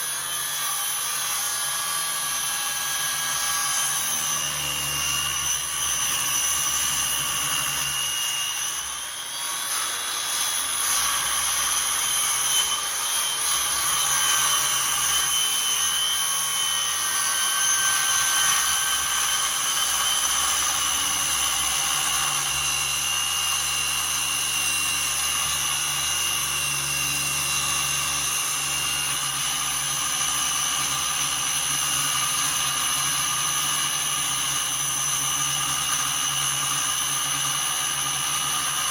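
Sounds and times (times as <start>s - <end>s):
power tool motor whine: 0.0s - 38.9s.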